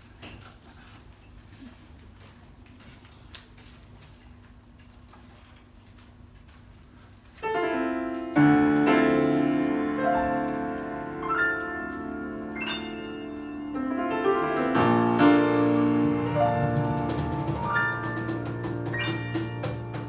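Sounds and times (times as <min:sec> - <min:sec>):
piano playing chords: 0:07.4 - 0:20.0.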